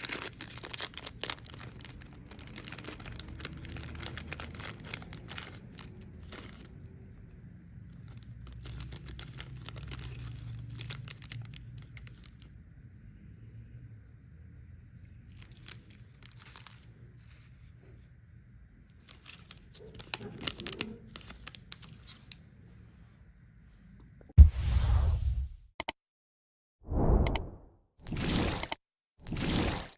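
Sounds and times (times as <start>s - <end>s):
plastic wrappers crinkling: 0.0s - 6.9s, 7.9s - 12.5s, 15.3s - 17.5s, 19.0s - 22.4s
loud low thump: 24.4s - 25.6s.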